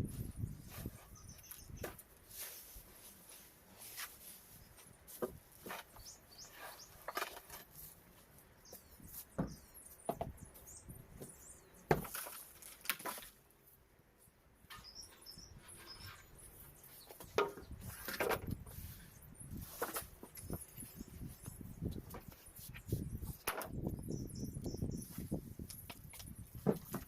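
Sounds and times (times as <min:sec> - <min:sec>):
bird chirping: 0:00.4 - 0:02.0, 0:05.9 - 0:07.2, 0:08.5 - 0:12.0, 0:14.7 - 0:17.9, 0:18.8 - 0:26.4
knocks and scrapes on timber: 0:17.0 - 0:19.0, 0:25.9 - 0:27.0.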